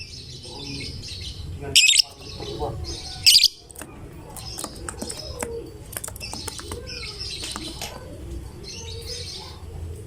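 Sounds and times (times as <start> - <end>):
lovebird chirping and twittering: 0.0 - 3.7, 6.1 - 7.8.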